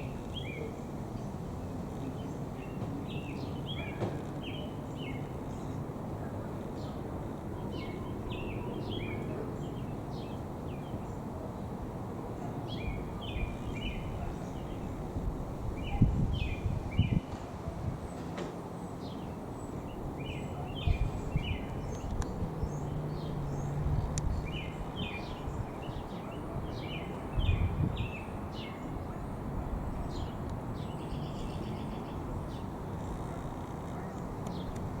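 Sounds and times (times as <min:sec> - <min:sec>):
low gusts of noise: 0:00.0 - 0:35.0
small birds chirping: 0:18.9 - 0:34.9.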